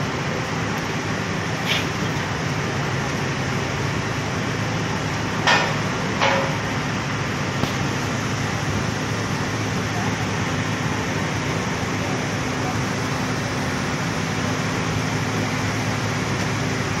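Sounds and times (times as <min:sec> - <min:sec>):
steady machine hum: 0:00.0 - 0:17.0
sharp metallic clanks: 0:05.4 - 0:06.7.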